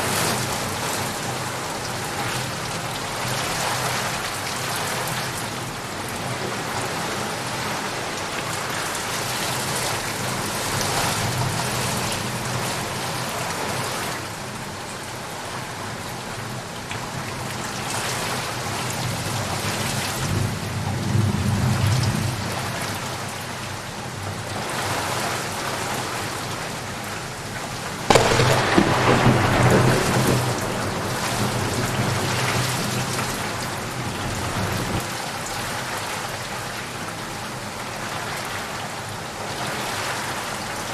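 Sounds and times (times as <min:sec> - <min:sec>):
heavy rain falling: 0:00.0 - 0:40.9
sharp thunderclap: 0:28.1 - 0:33.3
thunder rumbling: 0:28.1 - 0:35.0.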